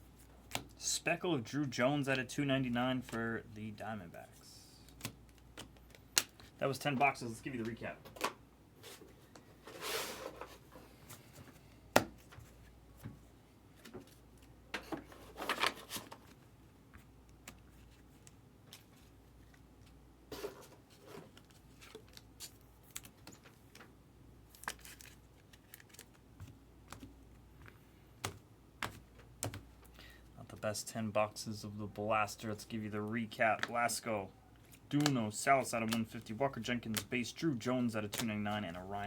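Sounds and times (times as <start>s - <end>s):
trading cards rustling: 24.5s - 27.2s, 32.4s - 39.0s.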